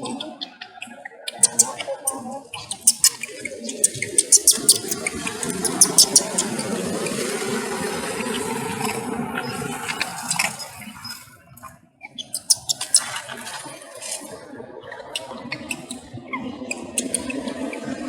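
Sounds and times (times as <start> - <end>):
baby monkey squeaking cries: 1.3 - 6.6, 12.2 - 13.1, 16.8 - 17.3.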